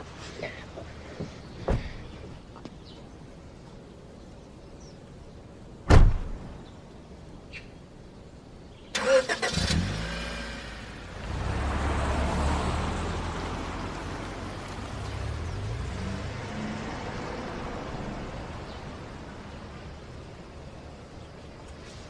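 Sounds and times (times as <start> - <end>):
car engine rumbling: 8.9 - 21.7.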